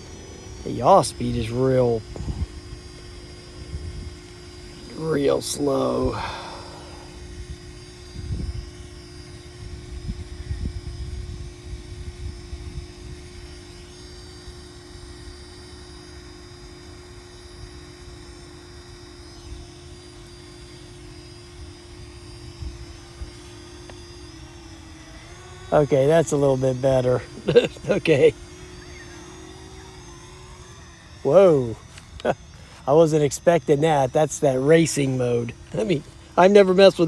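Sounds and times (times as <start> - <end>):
drone propellers humming: 0.0 - 37.0
faint high whine: 0.0 - 37.0
wind rumble on microphone: 2.0 - 2.8, 7.3 - 8.7, 9.6 - 13.4.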